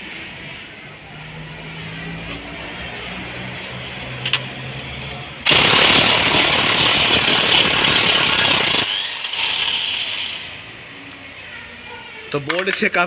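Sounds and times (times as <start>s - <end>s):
impact wrench hammering: 5.5s - 10.2s.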